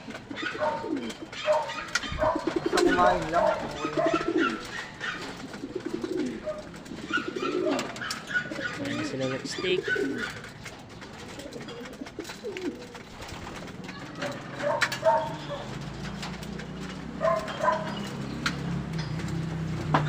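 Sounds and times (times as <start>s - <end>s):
pigeons cooing: 0.0s - 20.0s
sharp clicks and taps: 10.2s - 20.0s.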